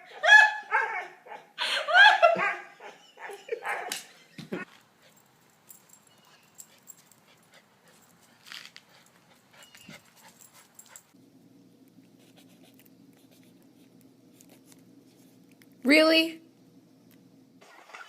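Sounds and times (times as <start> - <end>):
dog whimper: 2.3 - 3.9
steady low hum: 4.6 - 17.6
dog panting: 6.2 - 11.2.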